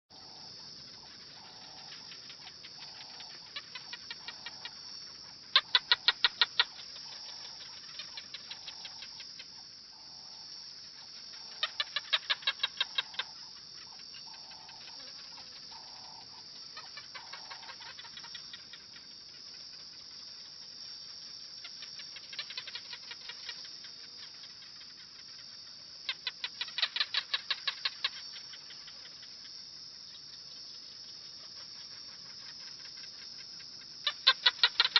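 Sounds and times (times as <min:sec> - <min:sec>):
bird clicking calls: 0:05.6 - 0:09.6.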